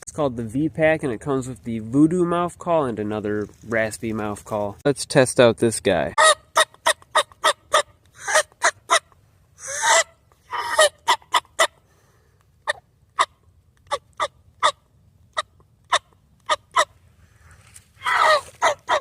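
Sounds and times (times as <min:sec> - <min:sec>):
turkey call yelps: 0:06.2 - 0:11.8, 0:12.6 - 0:17.0, 0:18.0 - 0:19.0.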